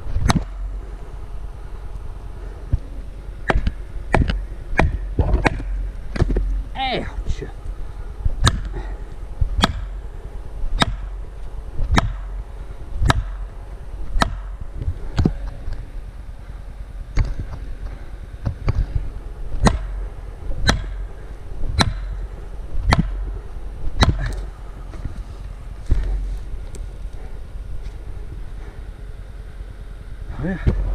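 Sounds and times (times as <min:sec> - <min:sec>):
blows driving wedge into tree: 0:09.5 - 0:10.0, 0:13.0 - 0:13.4, 0:19.6 - 0:20.0, 0:22.8 - 0:23.2.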